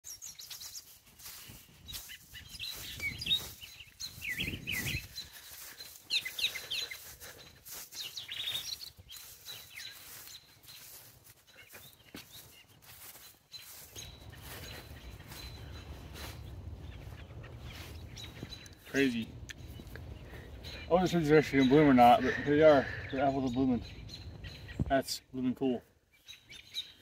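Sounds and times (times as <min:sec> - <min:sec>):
songbirds chirping and singing: 0:00.1 - 0:27.0.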